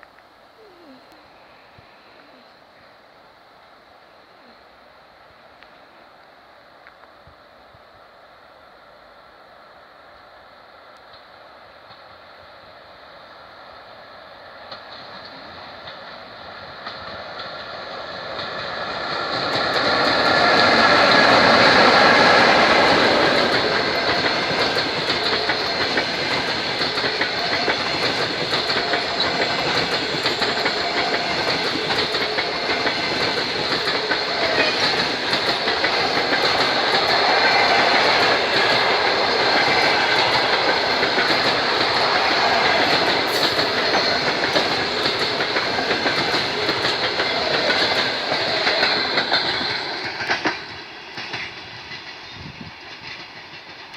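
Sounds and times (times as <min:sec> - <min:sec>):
train wheels clattering over rail joints: 0:14.6 - 0:53.9.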